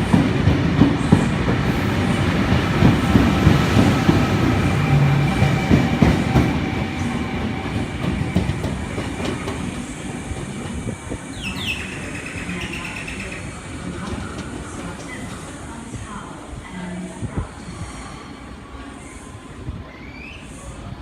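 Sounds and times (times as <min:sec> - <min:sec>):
train wheels clacking: 0:00.0 - 0:10.9.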